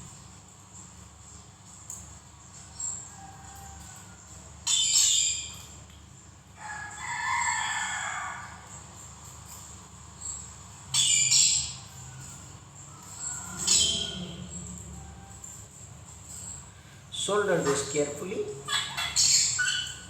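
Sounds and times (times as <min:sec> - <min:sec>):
birds chirping: 0:10.2 - 0:15.4, 0:16.0 - 0:20.0.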